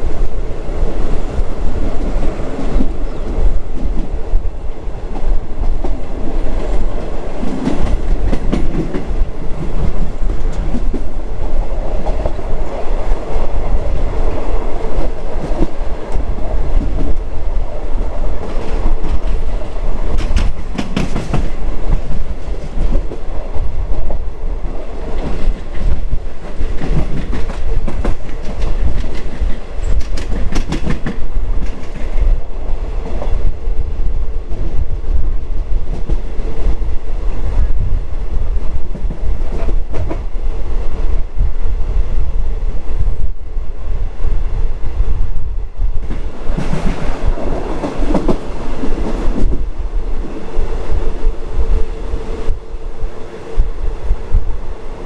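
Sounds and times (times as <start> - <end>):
train rumble: 0.0 - 55.0
wheels clacking over rail joints: 17.9 - 23.4, 25.0 - 32.3.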